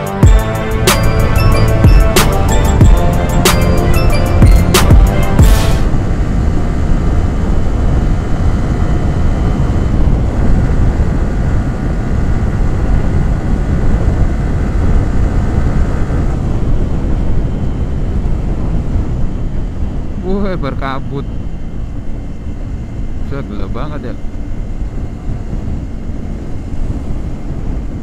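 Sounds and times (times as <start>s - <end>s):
motorcycle engine running: 0.2s - 20.2s
wind rush on microphone: 0.2s - 28.0s.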